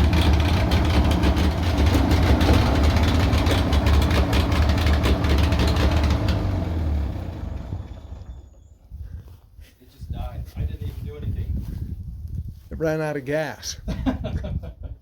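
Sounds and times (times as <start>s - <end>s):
tractor engine running rough: 0.0s - 8.8s.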